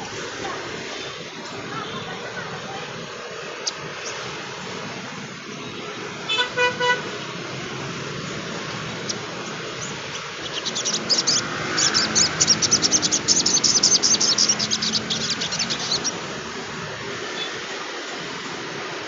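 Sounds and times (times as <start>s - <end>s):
bird chattering trill: 9.0s - 16.2s.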